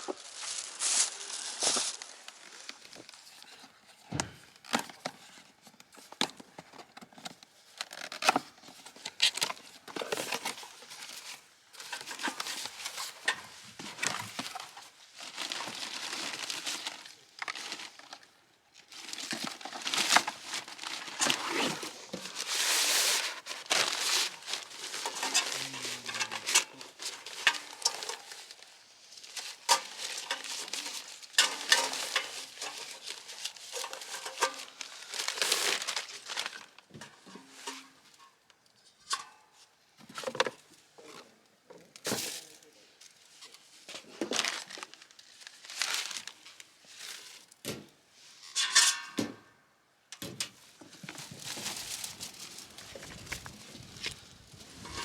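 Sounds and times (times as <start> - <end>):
wrapping material crinkling: 0.0 - 3.7, 7.6 - 36.9, 43.8 - 47.5, 51.0 - 55.0.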